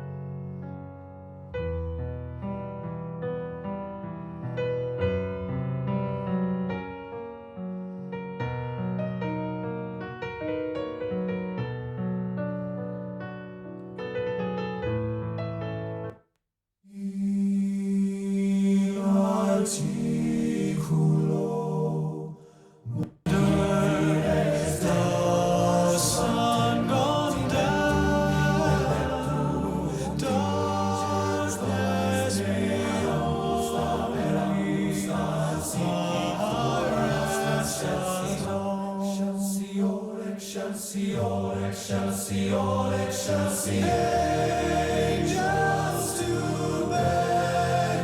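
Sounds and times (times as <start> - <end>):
choral singing over loudspeakers: 17.0 - 22.4, 23.0 - 48.0.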